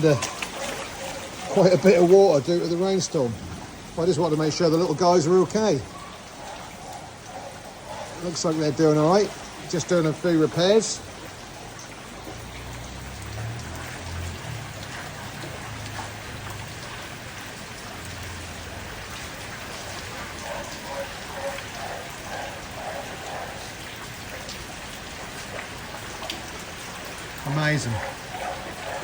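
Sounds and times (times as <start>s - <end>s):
water droplets pattering on leaves: 0.0s - 29.0s.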